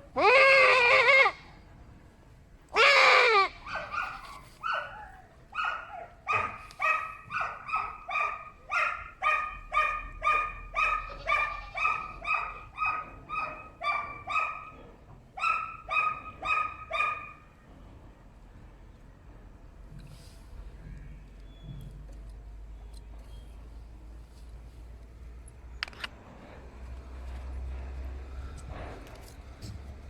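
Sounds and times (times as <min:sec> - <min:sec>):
goat crying: 0:00.0 - 0:01.6, 0:02.7 - 0:04.4, 0:10.8 - 0:12.8
dog barking: 0:03.6 - 0:14.8, 0:15.4 - 0:17.4.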